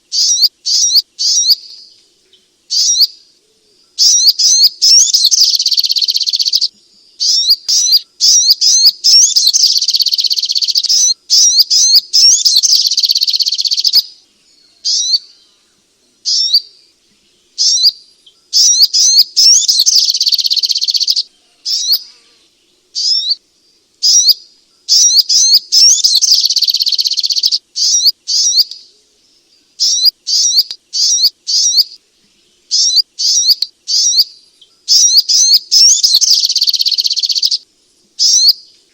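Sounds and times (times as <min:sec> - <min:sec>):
bird chirping rapidly: 0:00.1 - 0:01.9, 0:02.7 - 0:03.2, 0:04.0 - 0:14.2, 0:14.8 - 0:15.4, 0:16.2 - 0:16.8, 0:17.6 - 0:22.1, 0:23.0 - 0:23.4, 0:24.0 - 0:28.9, 0:29.8 - 0:32.0, 0:32.7 - 0:37.6, 0:38.2 - 0:38.7.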